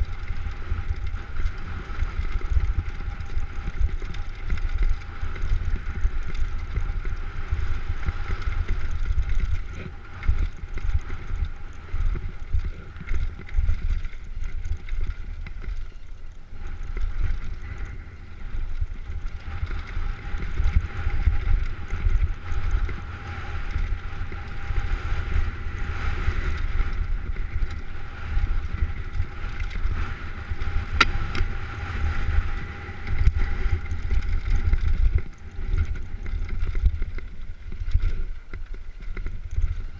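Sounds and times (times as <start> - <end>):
faint steady whine: 0.0 - 39.9
wind buffeting microphone: 0.0 - 39.9.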